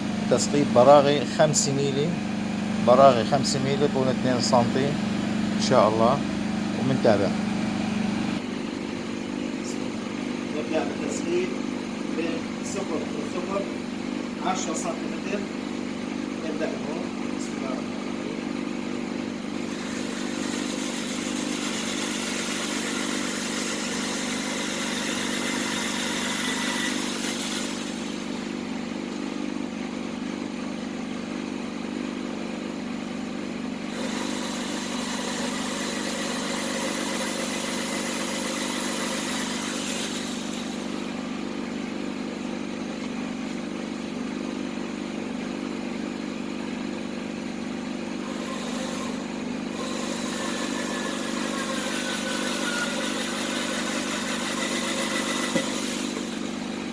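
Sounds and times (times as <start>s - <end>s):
steady low hum: 0.0s - 20.2s
power drill drilling plastic: 19.6s - 29.2s, 33.9s - 41.2s, 48.3s - 56.9s.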